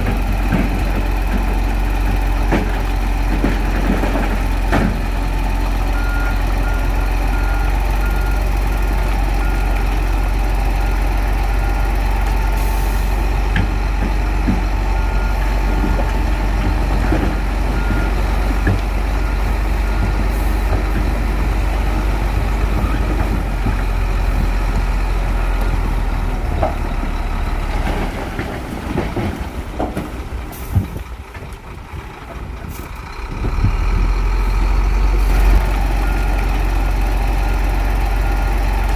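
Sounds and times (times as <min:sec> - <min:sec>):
bulldozer diesel engine running: 0:00.0 - 0:38.9
reversing alarm beeping: 0:17.0 - 0:18.3.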